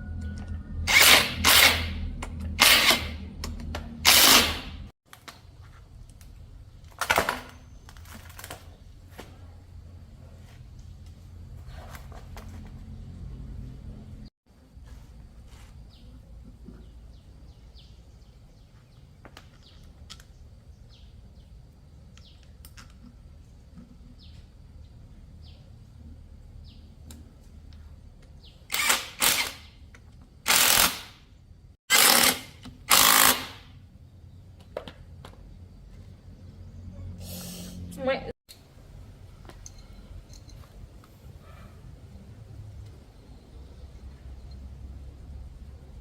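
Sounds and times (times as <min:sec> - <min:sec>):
tool clicks: 0:00.3 - 0:04.8
pressurised gas hissing blasts: 0:37.2 - 0:37.9.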